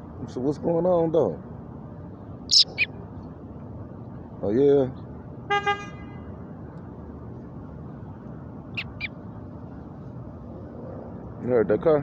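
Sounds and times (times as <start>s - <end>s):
high chirps: 2.5s - 2.9s, 8.8s - 9.1s.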